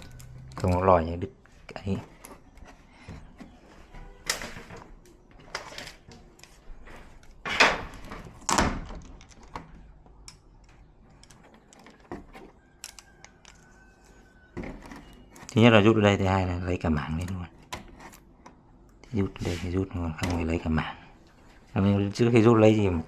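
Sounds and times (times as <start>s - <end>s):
connectors being pulled: 0.0s - 1.1s, 4.2s - 13.6s
clicks and knocks of parts handled: 0.0s - 15.8s, 17.0s - 19.1s.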